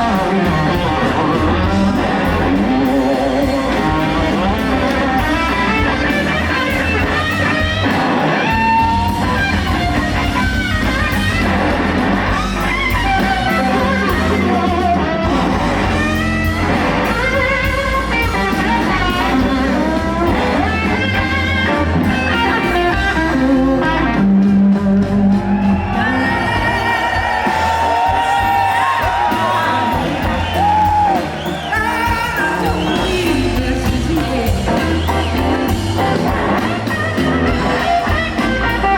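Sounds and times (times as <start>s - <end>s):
person singing: 0.0s - 7.0s, 23.2s - 36.7s
low band backing: 0.0s - 38.9s.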